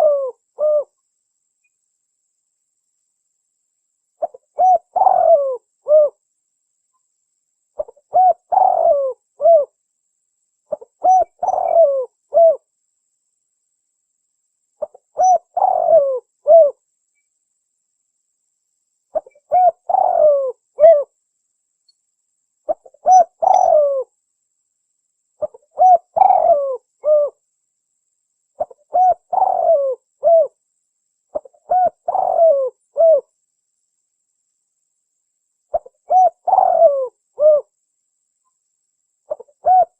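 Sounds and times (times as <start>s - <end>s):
dove cooing: 0.0s - 1.0s, 4.2s - 6.2s, 7.8s - 9.8s, 10.7s - 12.7s, 14.8s - 16.8s, 19.1s - 21.1s, 22.7s - 24.1s, 25.4s - 27.4s, 28.6s - 30.6s, 31.3s - 33.3s, 35.7s - 37.7s, 39.3s - 39.9s.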